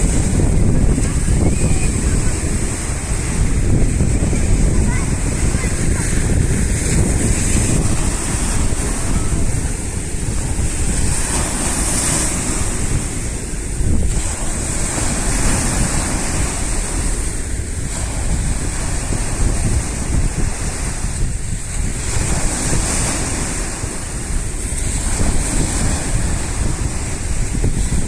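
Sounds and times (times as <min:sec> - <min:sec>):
sea surf washing ashore: 0:00.0 - 0:28.0
wind buffeting microphone: 0:00.0 - 0:28.0.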